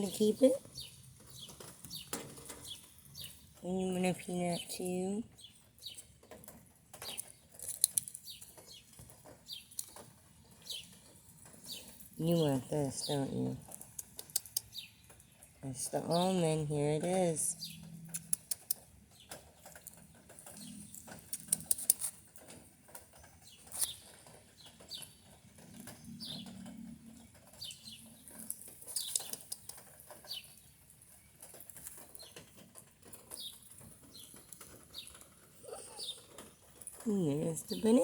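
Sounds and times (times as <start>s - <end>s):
bird chirping: 0.0s - 22.1s, 22.9s - 38.0s
sharp clicks: 18.1s - 22.5s, 28.4s - 30.2s.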